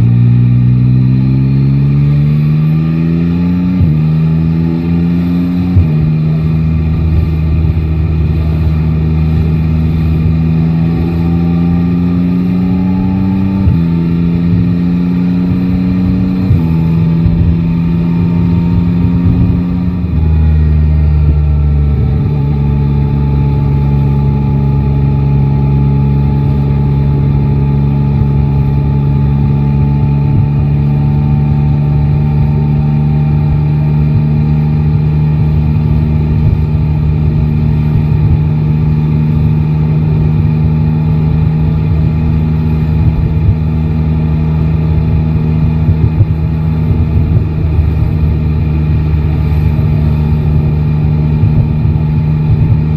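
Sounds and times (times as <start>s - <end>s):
motorcycle engine droning: 0.0s - 52.9s.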